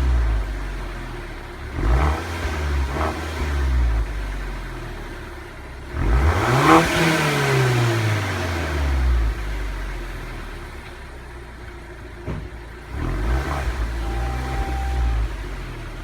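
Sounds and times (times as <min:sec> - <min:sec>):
car engine revving: 0:00.0 - 0:04.8, 0:05.8 - 0:10.4, 0:12.8 - 0:16.0.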